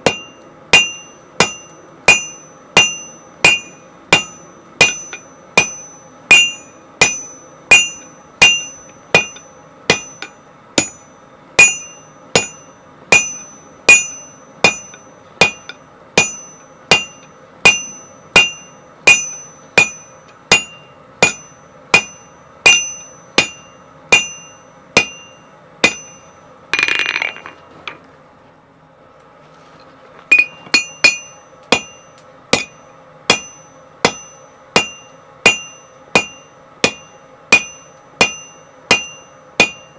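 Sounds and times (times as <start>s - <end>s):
hammer striking steel on anvil: 0.0s - 27.6s, 30.3s - 39.9s.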